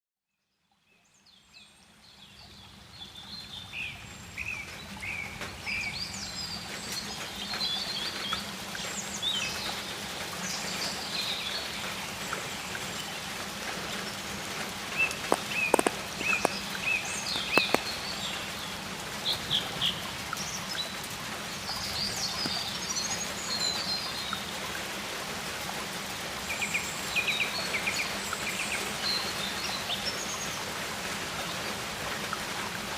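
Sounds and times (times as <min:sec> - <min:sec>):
songbirds chirping: 0:01.2 - 0:25.0
hiss of water: 0:08.5 - 0:23.9.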